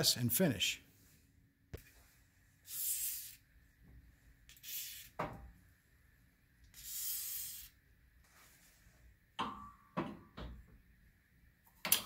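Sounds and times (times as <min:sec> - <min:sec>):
aerosol spray hissing: 0:04.5 - 0:05.2.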